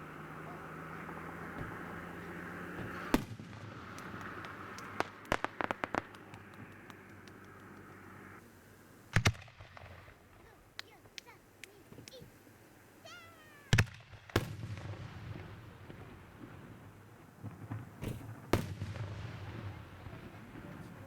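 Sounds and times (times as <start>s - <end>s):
firework bangs: 0.0s - 8.4s, 9.1s - 11.2s, 13.6s - 21.0s
firework cracks: 0.0s - 8.4s, 9.1s - 12.4s, 13.2s - 21.0s
firework booms: 2.7s - 6.5s, 13.7s - 21.0s
faint firework pops: 2.8s - 8.2s, 13.7s - 21.0s.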